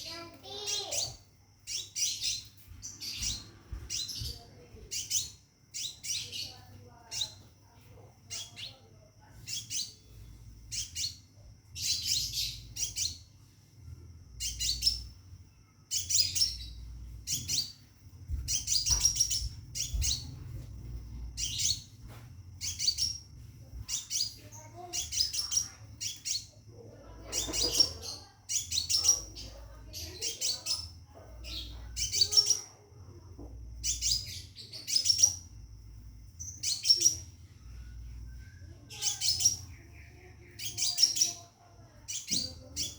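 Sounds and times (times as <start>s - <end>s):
bird chirping: 0.0s - 42.9s
faint low hum: 0.0s - 42.9s.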